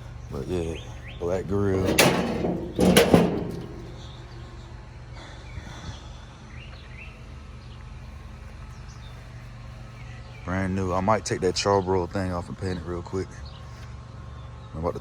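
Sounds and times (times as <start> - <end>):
loud rustling: 1.5 - 4.2.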